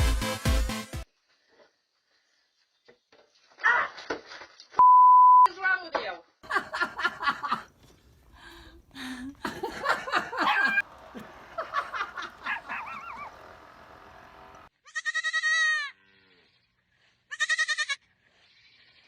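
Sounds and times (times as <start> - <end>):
young animal bleating: 14.8 - 16.5, 17.3 - 19.0.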